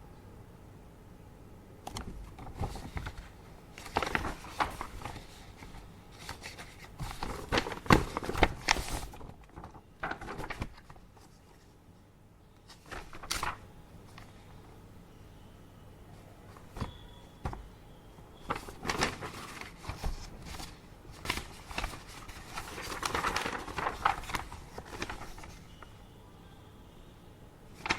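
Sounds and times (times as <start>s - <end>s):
faint steady hum: 0.0s - 27.9s
paper rustling: 1.9s - 11.8s, 12.7s - 14.5s, 16.5s - 25.9s.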